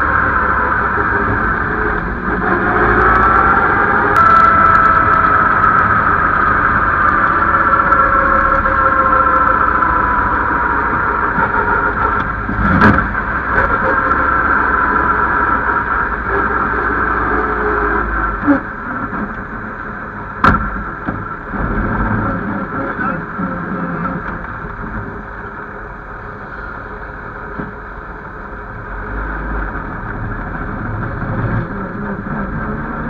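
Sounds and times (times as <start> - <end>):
racing car engine running: 0.0 - 33.0.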